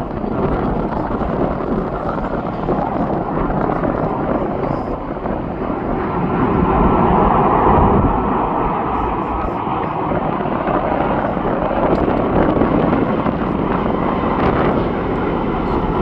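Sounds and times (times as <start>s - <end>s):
high engine whine: 0.0s - 16.0s
jet engines rushing: 0.0s - 16.0s.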